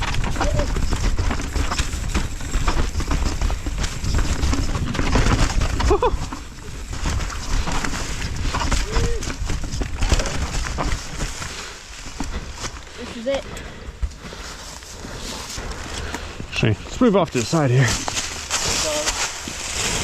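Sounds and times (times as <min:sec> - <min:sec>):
wind rumbling on microphone: 0:00.0 - 0:12.8
bike tyre noise: 0:00.0 - 0:20.0.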